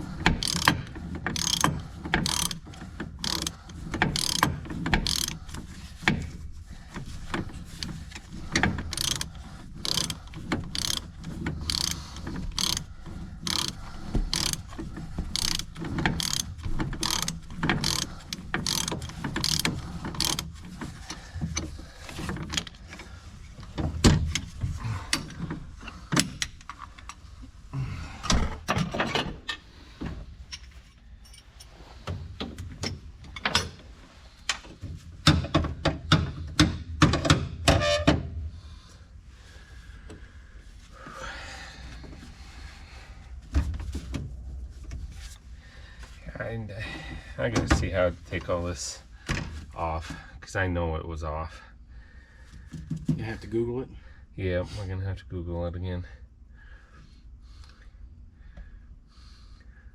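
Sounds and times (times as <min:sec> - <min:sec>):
ratchet wrench clicking: 0:00.2 - 0:05.6, 0:08.8 - 0:14.7, 0:15.3 - 0:20.5.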